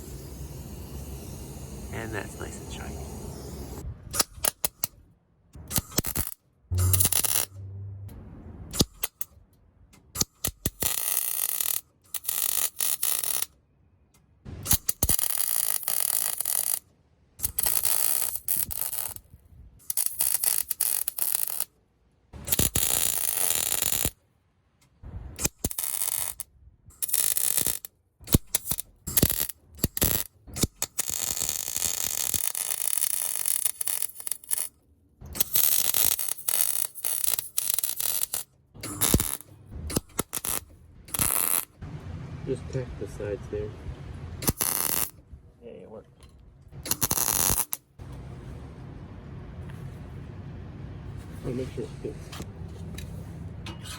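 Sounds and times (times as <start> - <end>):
welding crackle and hiss: 0.0 - 3.8, 5.8 - 7.5, 10.4 - 13.5, 14.7 - 21.7, 22.4 - 24.2, 25.4 - 34.7, 35.4 - 41.7, 44.4 - 45.2, 46.9 - 47.8.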